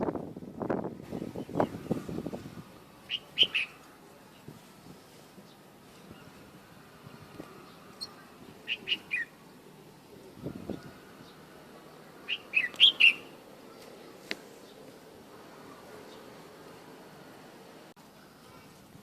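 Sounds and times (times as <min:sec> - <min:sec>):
bulbul whistled song: 0:03.1 - 0:03.8, 0:08.0 - 0:09.4, 0:12.3 - 0:13.4.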